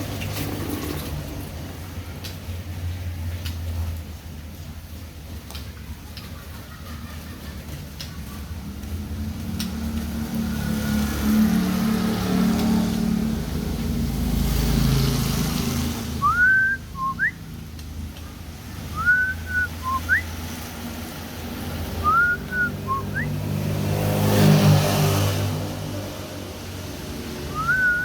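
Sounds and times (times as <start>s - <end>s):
low engine rumble: 0.0s - 23.7s, 25.6s - 28.0s
whistled phrase: 16.2s - 17.4s, 18.9s - 20.3s, 22.0s - 23.3s, 27.5s - 28.0s.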